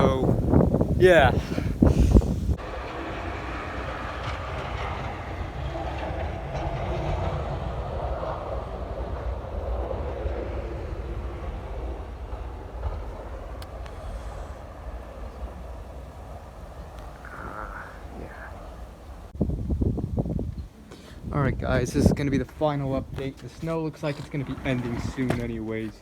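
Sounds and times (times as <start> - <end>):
vehicle rumbling past: 2.2 - 19.5.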